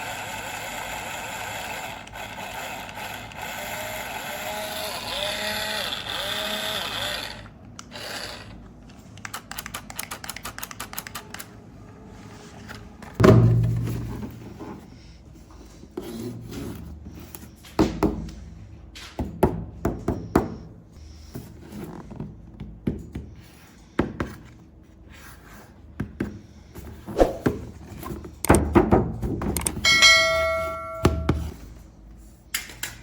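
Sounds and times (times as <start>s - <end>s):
bell-like ring: 29.8s - 31.5s.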